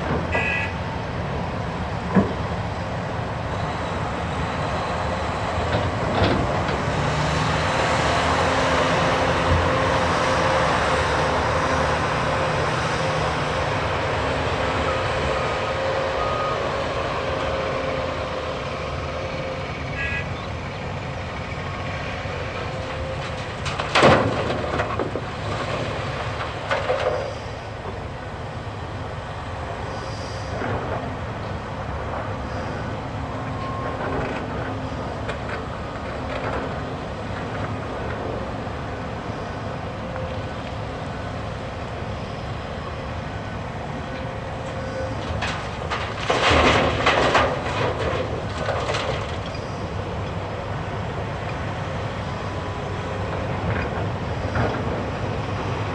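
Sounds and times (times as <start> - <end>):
heavy diesel machinery running: 0.0 - 55.9
load crashing into truck bed: 23.6 - 25.2, 45.9 - 49.2.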